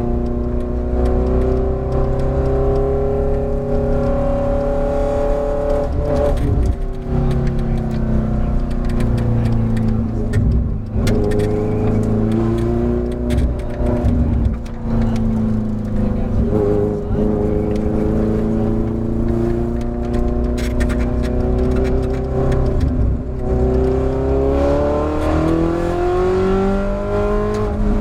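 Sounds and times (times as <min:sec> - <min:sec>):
race car engine accelerating: 0:00.0 - 0:28.0.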